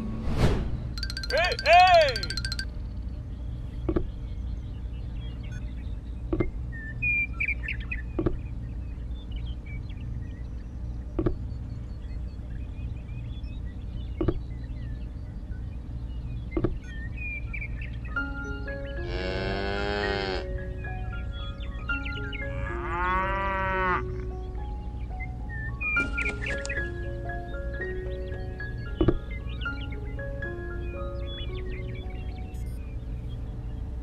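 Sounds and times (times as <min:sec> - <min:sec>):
soft background music: 0:00.0 - 0:34.0
birds chirping: 0:00.8 - 0:34.0
cow mooing: 0:19.0 - 0:20.5, 0:22.6 - 0:24.0.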